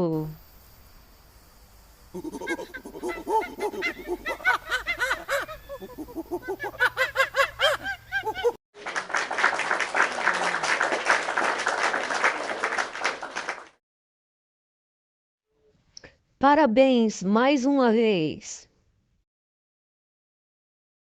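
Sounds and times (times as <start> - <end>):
fowl calling: 2.2 - 8.5
recorded applause: 7.7 - 13.8.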